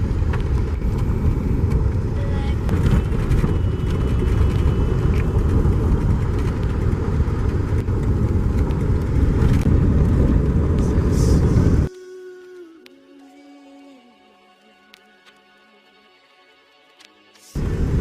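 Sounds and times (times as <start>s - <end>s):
car cabin road rumble: 0.0s - 11.9s, 17.6s - 18.0s
quiet music with held notes: 11.9s - 18.0s.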